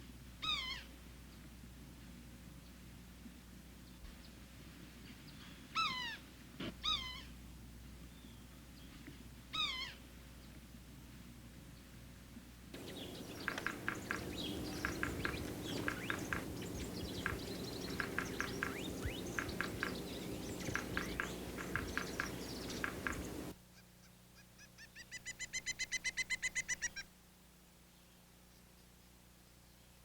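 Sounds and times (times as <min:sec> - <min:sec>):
low background rumble: 0:12.8 - 0:23.6
rapid repeated bird call notes: 0:12.8 - 0:23.6
songbirds chirping: 0:12.8 - 0:23.6.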